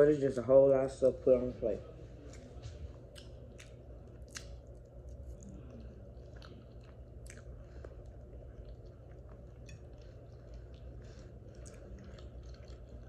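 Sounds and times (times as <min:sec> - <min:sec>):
low steady hum: 0:00.0 - 0:13.0
close-up chewing: 0:02.2 - 0:13.0
wet mouth clicks and smacks: 0:03.1 - 0:04.9.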